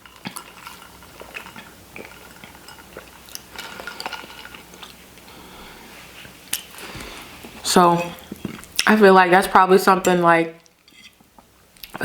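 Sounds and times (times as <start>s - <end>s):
cutlery scraping a dish: 10.9s - 11.2s.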